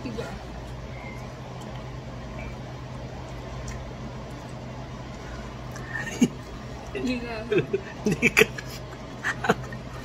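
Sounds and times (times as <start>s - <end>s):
low hum and hiss: 0.0s - 10.0s
person chewing food: 0.5s - 7.0s.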